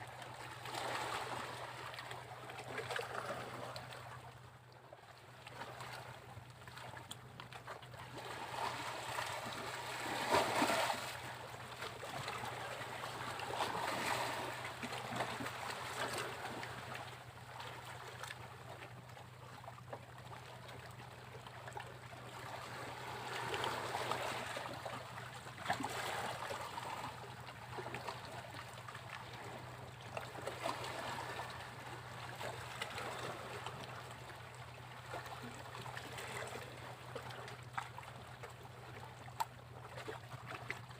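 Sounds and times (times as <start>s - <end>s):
waves breaking on a beach: 8.2s - 17.0s.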